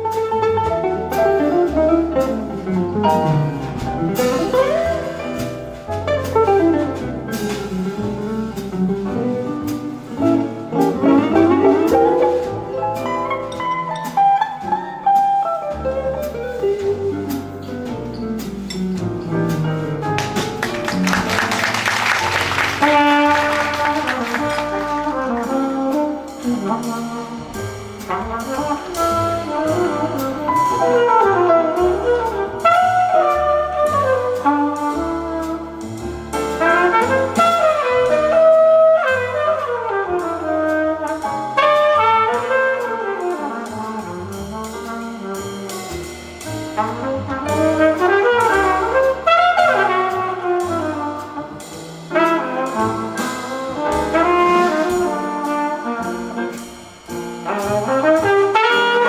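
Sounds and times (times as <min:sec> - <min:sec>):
drums with cymbals: 0:00.0 - 0:59.0
piano: 0:00.0 - 0:59.0
walking double bass: 0:00.0 - 0:59.0
flugelhorn melody: 0:10.1 - 0:14.8, 0:20.2 - 0:59.0.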